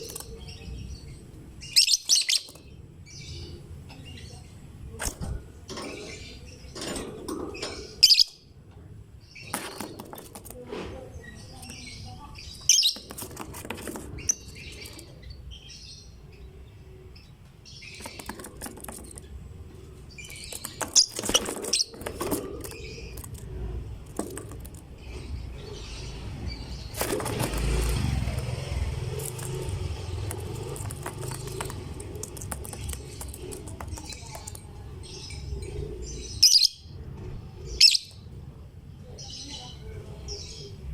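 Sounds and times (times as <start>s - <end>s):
lovebird chirping: 0.0s - 4.5s, 11.2s - 13.3s
rushing noise with low rumble: 23.2s - 34.3s.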